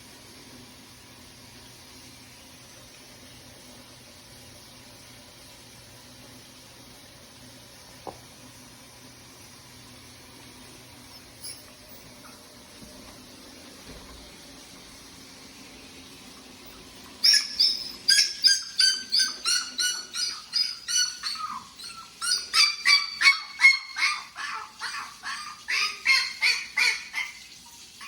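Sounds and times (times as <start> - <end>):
puppy yipping: 11.1 - 12.6, 16.7 - 28.0.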